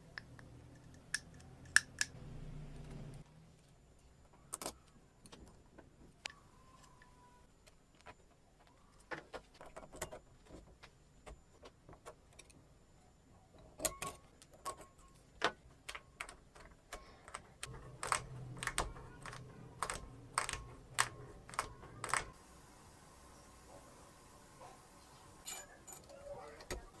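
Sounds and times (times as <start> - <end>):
metal tools clinking: 25.4 - 26.3.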